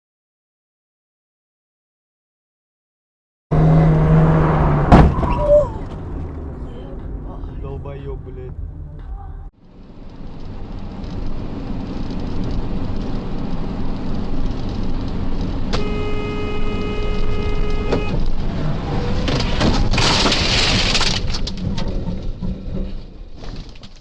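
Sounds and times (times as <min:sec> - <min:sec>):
car road and engine noise: 0:03.5 - 0:24.0
car horn: 0:15.7 - 0:18.3.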